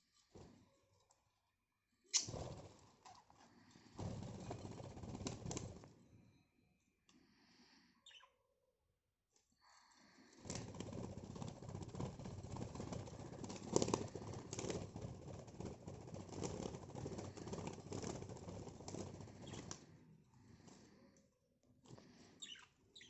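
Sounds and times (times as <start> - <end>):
birds flapping wings: 2.2 - 5.9, 10.2 - 21.0.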